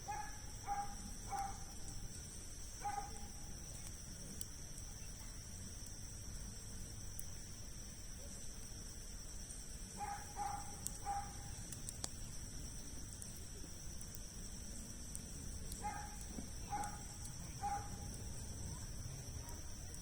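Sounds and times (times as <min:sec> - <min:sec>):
campfire crackling and popping: 0:00.0 - 0:20.0
insect trill: 0:00.0 - 0:20.0.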